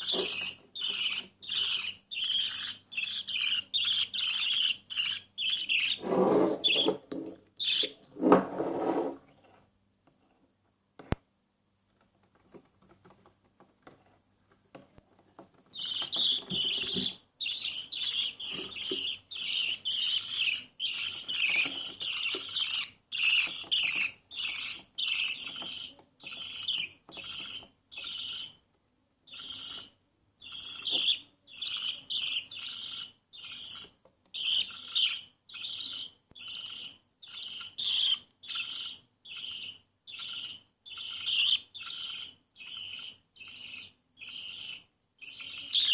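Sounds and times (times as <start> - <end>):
bird chick begging calls: 42.8 - 45.9.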